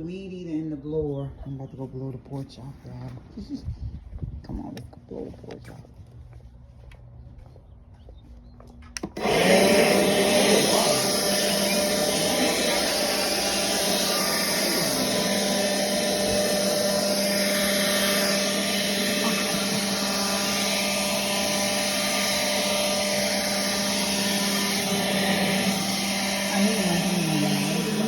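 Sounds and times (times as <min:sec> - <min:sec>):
leaf blower running: 0:09.0 - 0:28.0.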